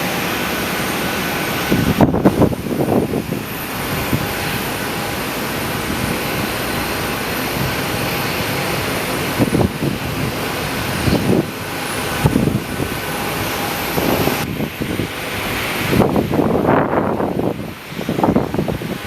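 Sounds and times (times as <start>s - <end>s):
aircraft engine noise: 0.0s - 19.0s
wind buffeting microphone: 0.0s - 19.0s.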